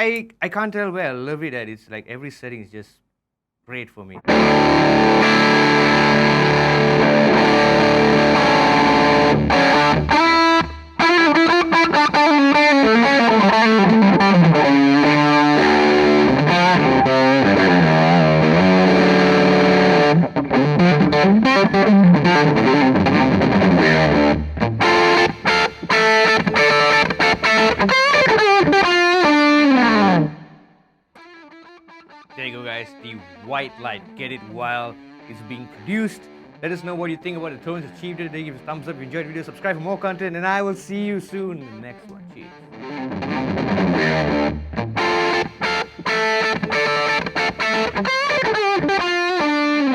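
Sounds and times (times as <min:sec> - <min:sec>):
distorted electric guitar: 0:04.2 - 0:40.4, 0:41.3 - 0:49.9.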